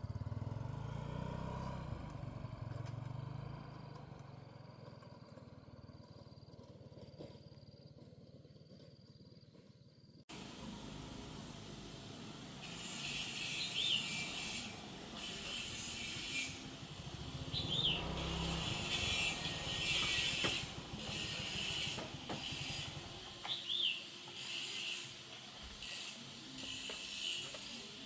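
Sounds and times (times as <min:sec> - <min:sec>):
small motorbike engine running: 0:00.0 - 0:09.6, 0:10.3 - 0:28.0.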